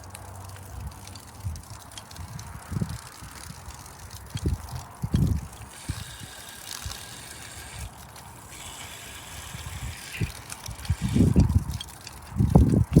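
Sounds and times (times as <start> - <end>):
faint machine hum: 4.5 - 13.0
pressure washer hissing: 5.5 - 12.3.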